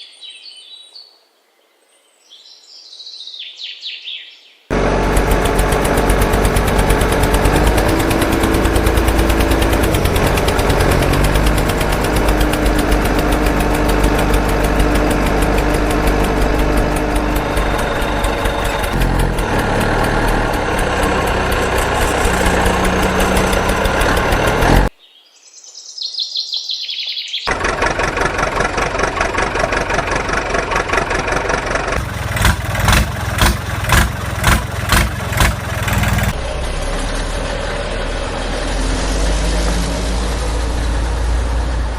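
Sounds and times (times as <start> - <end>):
throbbing engine: 4.7 - 24.9, 27.5 - 41.9
vehicle engine with fast pulse: 4.7 - 24.9, 27.5 - 41.9.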